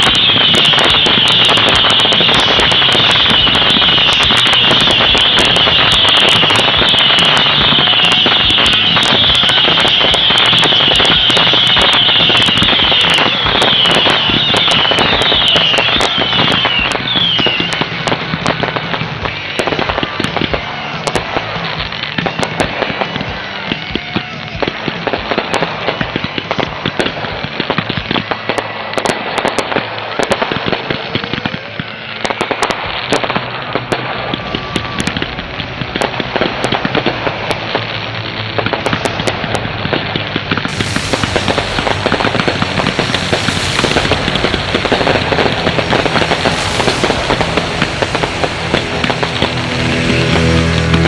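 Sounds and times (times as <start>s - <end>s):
fireworks crackling and popping: 0.0s - 51.0s
music playing: 40.7s - 51.0s.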